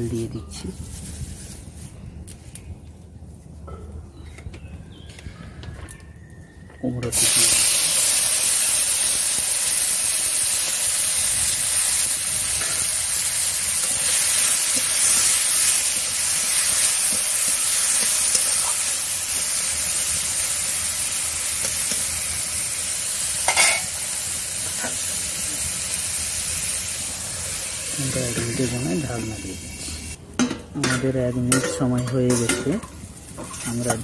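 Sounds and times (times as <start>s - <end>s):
food sizzling in hot oil: 7.1s - 30.2s, 30.8s - 34.0s
spatula stirring: 31.5s - 34.0s.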